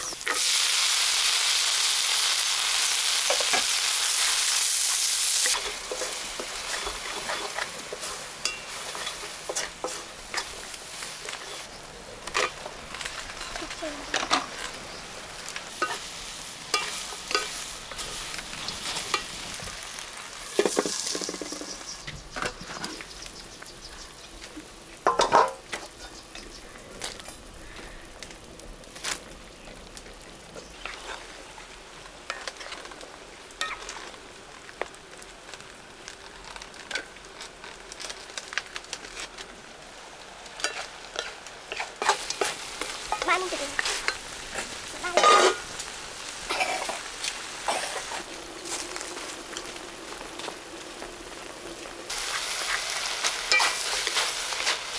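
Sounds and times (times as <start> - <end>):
food sizzling in a wok: 0.0 - 54.9
spatula scraping a pan: 5.2 - 14.8, 40.6 - 45.8, 52.2 - 54.9.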